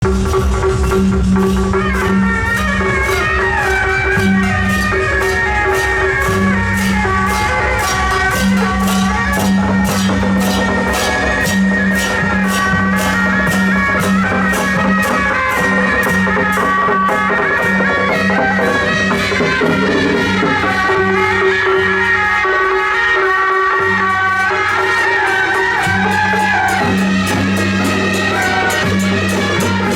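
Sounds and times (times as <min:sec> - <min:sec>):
cymbal and gong strikes: 0:00.0 - 0:20.8
shawms playing a melody: 0:00.0 - 0:29.9.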